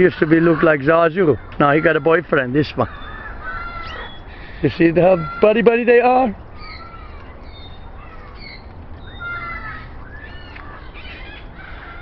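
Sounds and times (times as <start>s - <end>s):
parrots chirping and calling: 0.0s - 12.0s.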